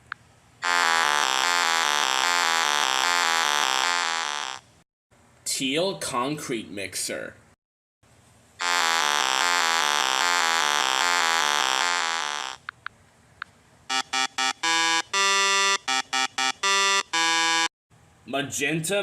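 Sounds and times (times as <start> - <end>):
buzzy pulsing synth tone: 0.6 - 4.6, 8.6 - 12.6, 13.9 - 17.7
horn-like beeps: 13.9 - 17.7.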